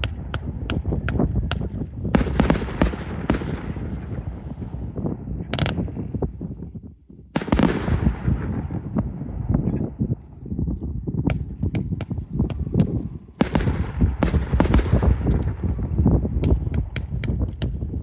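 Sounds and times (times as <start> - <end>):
fireworks crackling and banging: 0.0 - 6.0, 7.4 - 9.1, 13.4 - 18.0
continuous rumble: 0.0 - 18.0.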